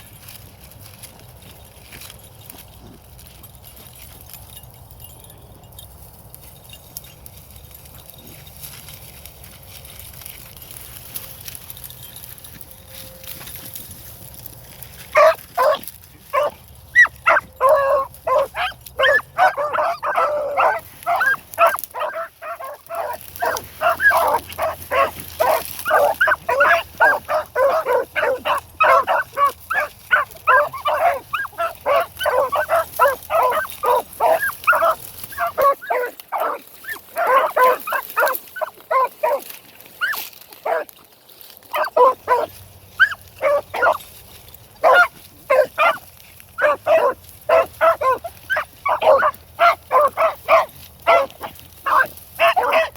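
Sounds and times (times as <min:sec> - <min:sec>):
hounds baying: 0:11.0 - 0:52.9.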